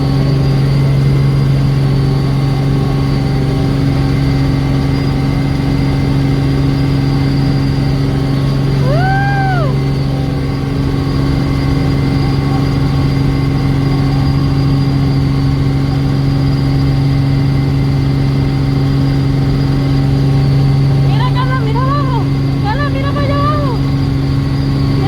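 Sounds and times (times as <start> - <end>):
helicopter engine drone: 0.0 - 25.0
high vocal glide: 21.1 - 23.8.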